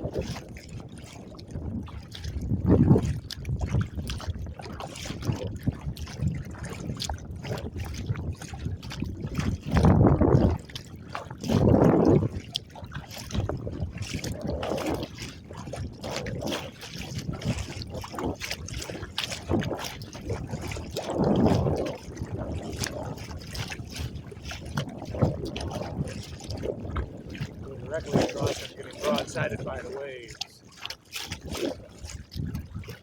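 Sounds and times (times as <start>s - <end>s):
water slapping against kayak hull: 0.0s - 33.0s.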